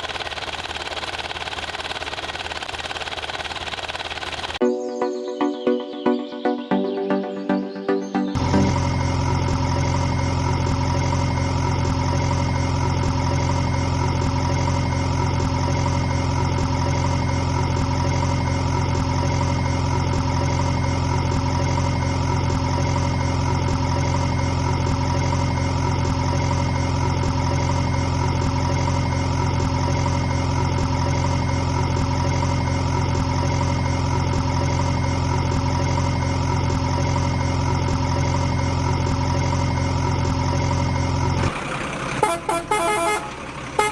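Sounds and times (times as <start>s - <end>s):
engine idling: 0.0s - 4.6s, 8.4s - 43.9s.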